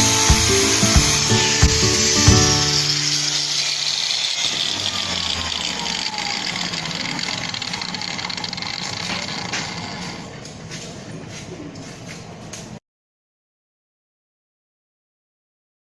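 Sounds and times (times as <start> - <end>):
handheld power tool whirring: 0.0 - 10.3.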